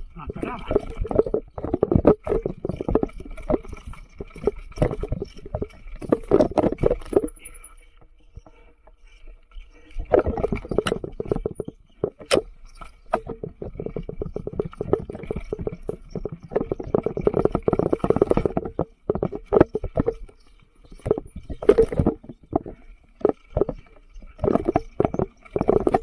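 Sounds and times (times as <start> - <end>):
bike rattling and knocking: 0.0 - 26.0.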